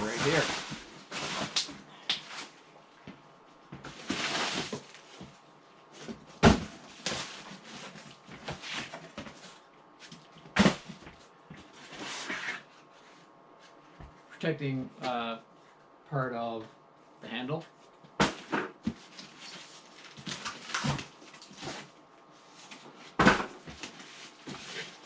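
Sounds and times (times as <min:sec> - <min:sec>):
cardboard scraping and rustling: 0:00.0 - 0:01.6, 0:03.8 - 0:09.5, 0:11.6 - 0:12.7, 0:22.5 - 0:25.0.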